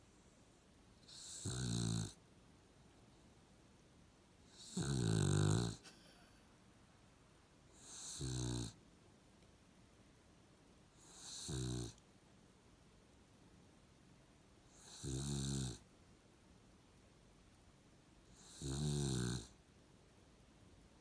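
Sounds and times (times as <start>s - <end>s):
dog snoring rattling: 1.1s - 2.1s, 4.6s - 5.8s, 7.9s - 8.7s, 11.2s - 12.0s, 18.4s - 19.5s.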